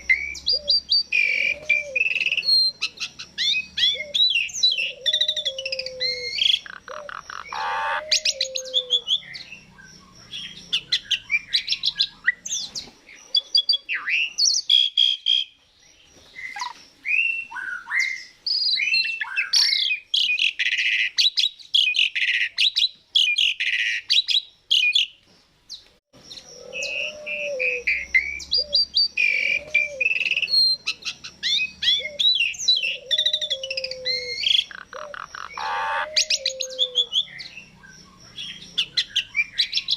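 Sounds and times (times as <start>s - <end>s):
starling singing: 0.0s - 15.6s, 26.2s - 39.9s.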